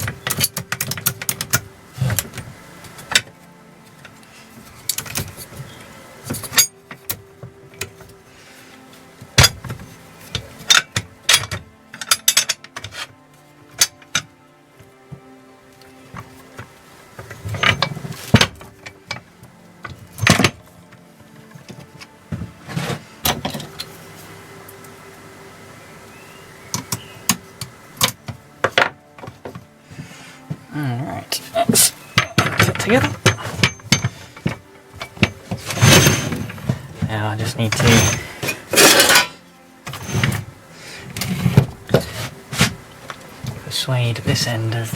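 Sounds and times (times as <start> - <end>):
metal parts clinking and clanking: 0.0 - 8.2, 9.4 - 14.3, 17.2 - 20.8, 31.6 - 43.6.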